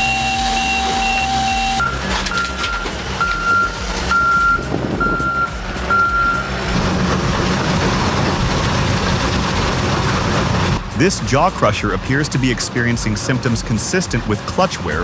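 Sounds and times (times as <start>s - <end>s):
back-up alarm beeping: 0.0s - 6.5s
heavy machine engine running: 0.0s - 15.0s.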